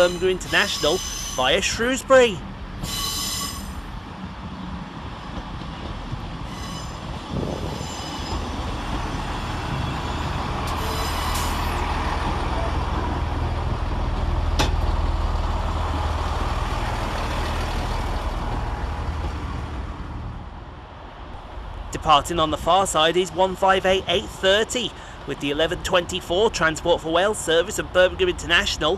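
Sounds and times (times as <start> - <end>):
train brake and wheel squeals: 0.0 - 1.6, 2.8 - 3.8, 6.5 - 11.8
diesel engines droning: 0.0 - 2.8, 6.4 - 28.9.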